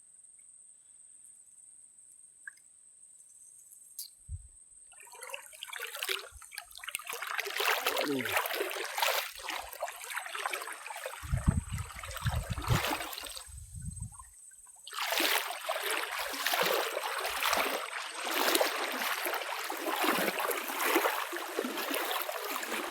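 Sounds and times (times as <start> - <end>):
water rushing and trickling: 5.0 - 22.9
wind on microphone: 11.2 - 14.3.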